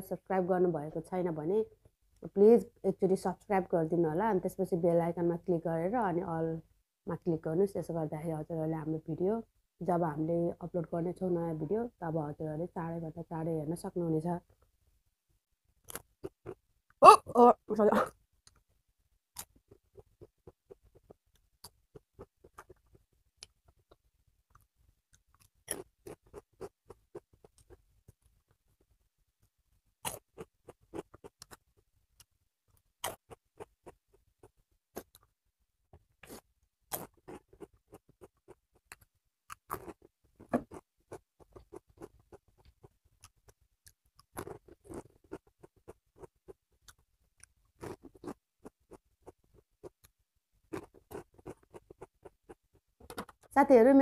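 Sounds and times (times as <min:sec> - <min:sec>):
person chewing food: 0:15.8 - 0:16.6, 0:19.3 - 0:35.4, 0:36.2 - 0:53.0.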